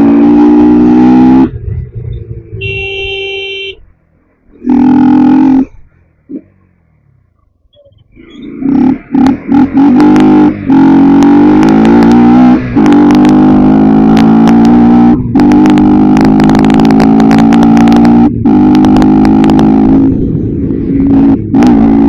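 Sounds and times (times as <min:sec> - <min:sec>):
motorcycle engine running: 0:01.4 - 0:04.0.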